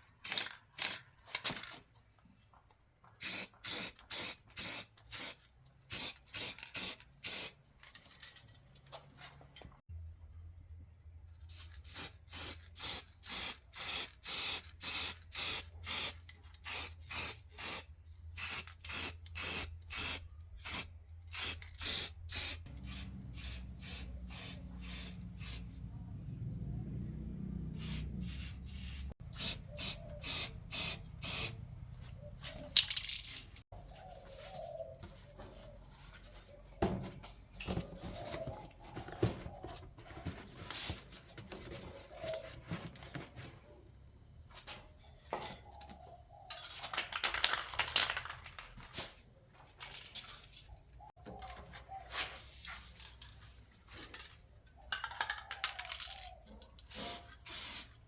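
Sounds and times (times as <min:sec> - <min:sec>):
hissing spray bursts: 0:03.2 - 0:07.6, 0:11.5 - 0:25.7, 0:27.7 - 0:31.6, 0:56.9 - 0:58.0.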